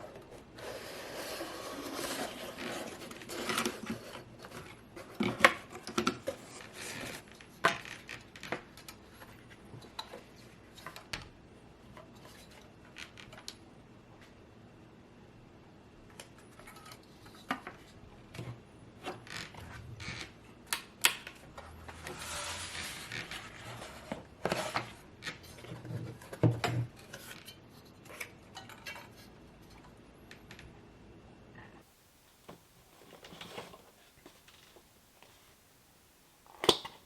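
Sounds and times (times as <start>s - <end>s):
rustling and scraping: 0.0s - 11.1s, 16.4s - 20.6s, 21.4s - 29.9s, 31.8s - 35.6s.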